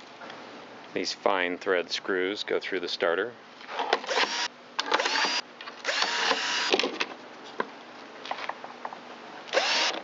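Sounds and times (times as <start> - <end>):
power drill spinning up: 4.1 - 6.7, 9.5 - 10.0.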